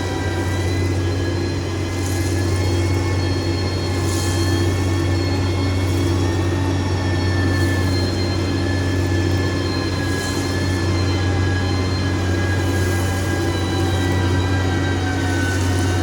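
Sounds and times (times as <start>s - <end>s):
heavy machine engine running: 0.0s - 16.0s.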